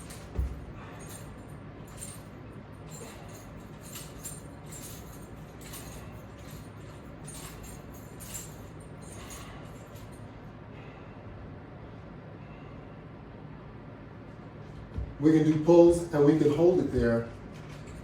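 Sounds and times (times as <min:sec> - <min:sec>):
metal hardware jingling: 0:00.0 - 0:10.3, 0:16.0 - 0:18.0
steady low hum: 0:00.0 - 0:18.0.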